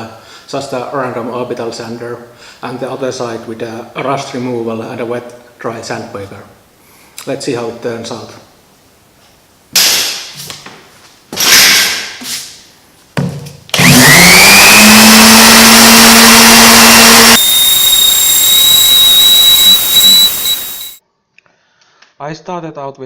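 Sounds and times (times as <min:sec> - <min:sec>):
orbital sander running: 0:13.8 - 0:21.0.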